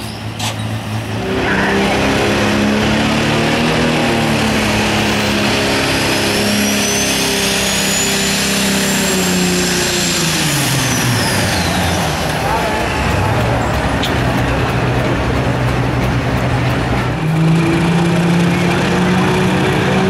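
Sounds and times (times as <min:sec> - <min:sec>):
loud diesel engine drone: 0:00.0 - 0:20.0
high turbo whistle: 0:05.7 - 0:12.4.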